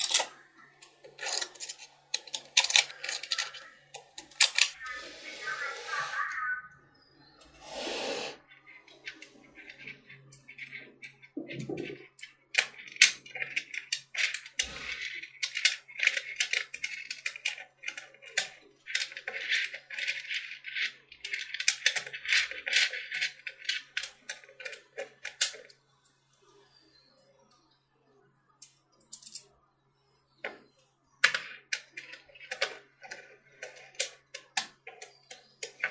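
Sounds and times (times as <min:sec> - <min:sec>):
magnetic metal balls clicking: 0:08.6 - 0:25.8, 0:31.2 - 0:35.9.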